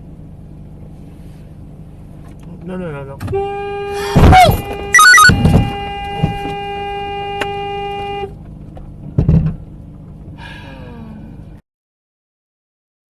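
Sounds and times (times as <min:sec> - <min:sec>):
road noise: 0:00.0 - 0:11.6
car horn blast: 0:03.3 - 0:08.4.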